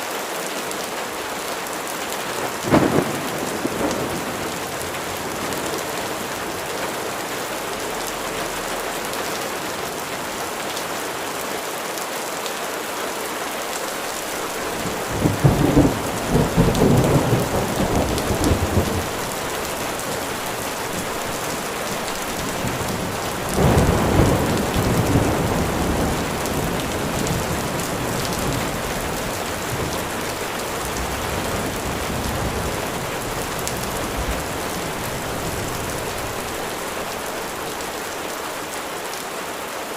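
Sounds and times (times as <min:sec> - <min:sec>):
heavy rain: 0:00.0 - 0:39.9
thunder rolling: 0:02.4 - 0:09.3, 0:14.3 - 0:38.3.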